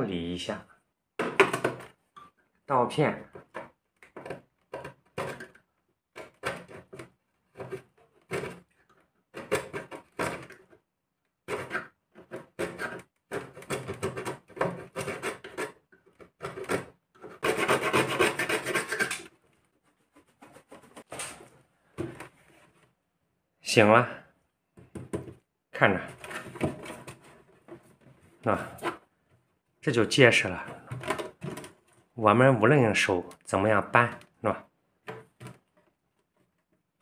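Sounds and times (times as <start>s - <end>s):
razor blade scraping plastic: 11.5s - 19.4s.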